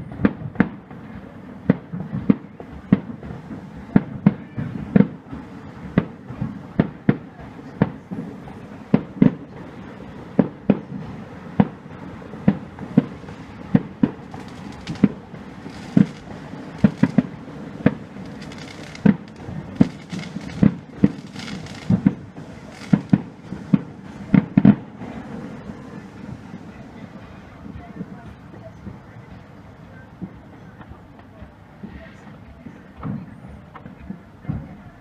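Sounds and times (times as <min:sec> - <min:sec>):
hissing crackle: 0:07.4 - 0:29.2
fireworks shells bursting: 0:08.2 - 0:26.6.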